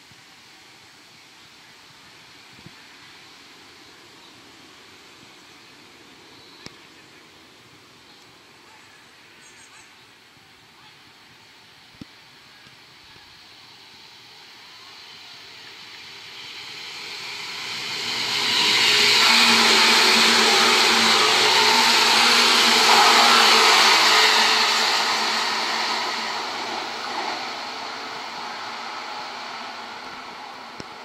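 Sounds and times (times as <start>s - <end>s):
train passing at speed: 0.4s - 31.0s.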